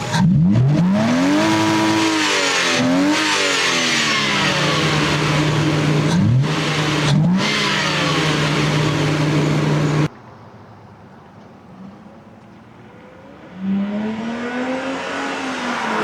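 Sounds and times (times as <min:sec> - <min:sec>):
car engine and exhaust running: 0:00.0 - 0:10.1.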